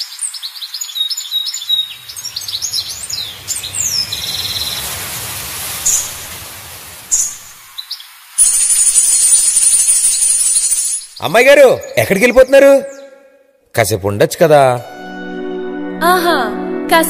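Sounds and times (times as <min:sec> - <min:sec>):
birds chirping: 0:00.0 - 0:13.6
steady rushing noise: 0:02.0 - 0:07.7.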